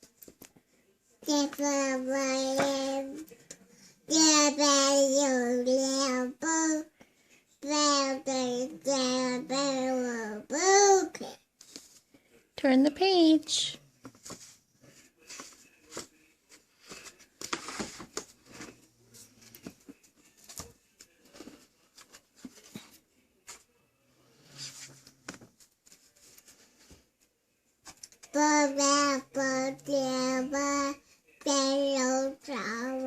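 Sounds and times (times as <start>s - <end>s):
child singing: 1.2s - 3.2s, 4.1s - 6.9s, 7.6s - 11.3s, 28.3s - 33.0s.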